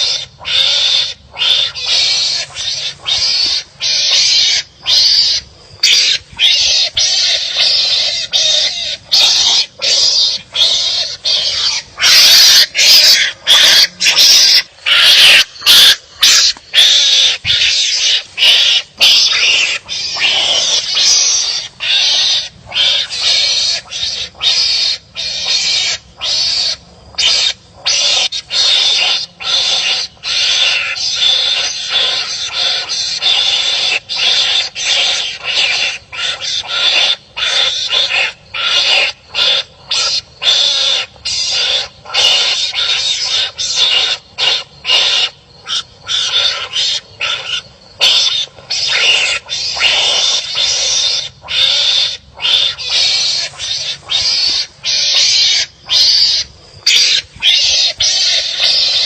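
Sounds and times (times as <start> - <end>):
animals calling harshly: 0.0 - 59.0.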